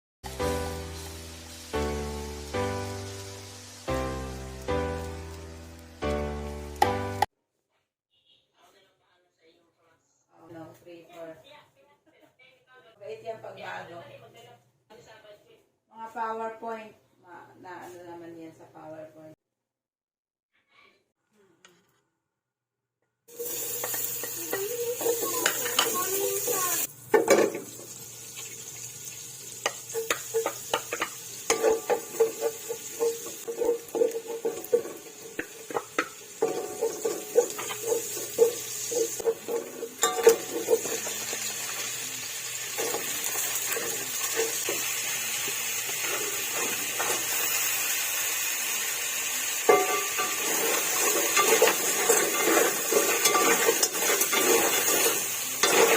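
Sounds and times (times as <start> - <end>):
food sizzling in a pan: 0.2 - 7.3, 23.3 - 55.9
utensil scraping a pan: 29.6 - 42.0, 42.7 - 47.8, 49.6 - 55.9.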